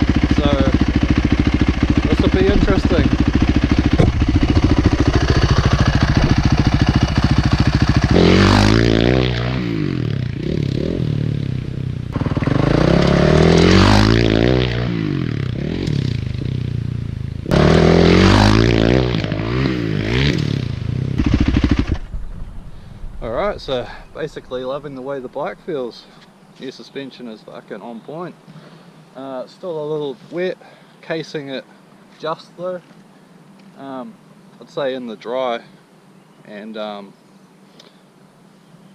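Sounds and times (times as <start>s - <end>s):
dirt bike engine revving: 0.0s - 25.2s.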